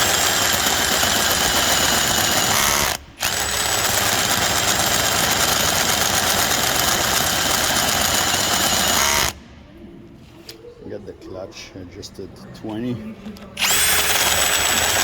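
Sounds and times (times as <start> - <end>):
drill whining under load: 0.0 - 9.4, 13.6 - 15.0.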